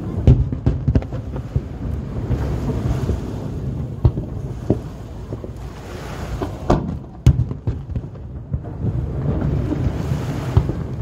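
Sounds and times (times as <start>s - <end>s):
small firework cracks: 0.0s - 3.3s, 6.3s - 11.0s
firework booms: 0.0s - 11.0s
low rumble of bursts: 0.0s - 11.0s.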